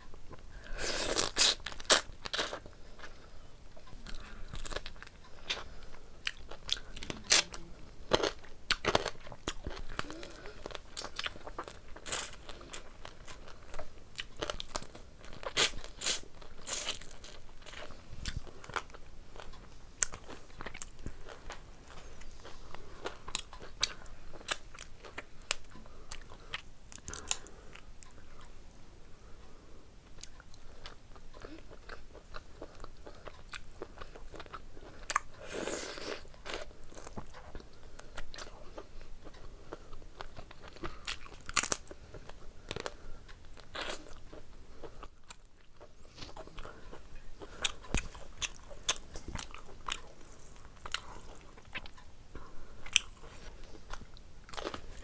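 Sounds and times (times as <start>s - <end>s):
chewing and crunching: 0.2s - 28.5s, 30.0s - 55.0s.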